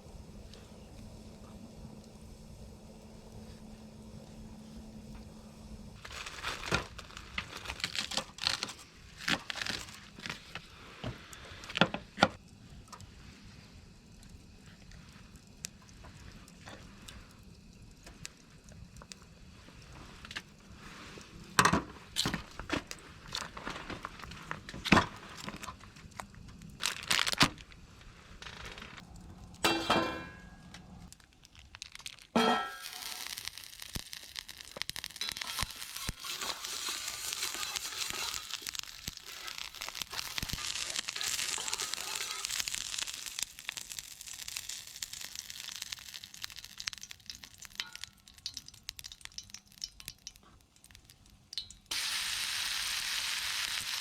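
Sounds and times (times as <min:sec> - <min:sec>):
packaging crinkling: 0:06.0 - 0:10.7, 0:25.3 - 0:29.0, 0:31.1 - 0:48.6
food sizzling in a hot pan: 0:32.0 - 0:50.4, 0:51.6 - 0:54.0.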